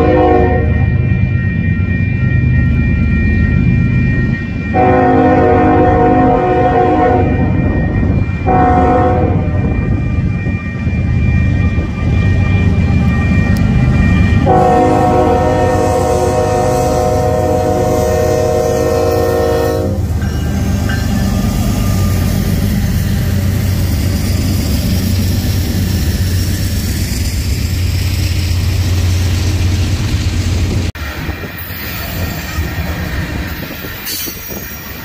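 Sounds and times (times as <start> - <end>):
locomotive horn: 0.0 - 0.9, 4.7 - 7.6, 8.4 - 9.9, 14.4 - 20.2
diesel locomotives rumbling: 0.0 - 35.0.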